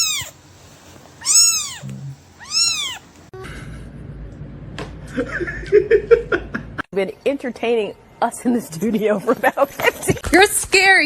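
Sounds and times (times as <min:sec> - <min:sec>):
cat meowing: 0:00.0 - 0:00.4, 0:01.2 - 0:03.0.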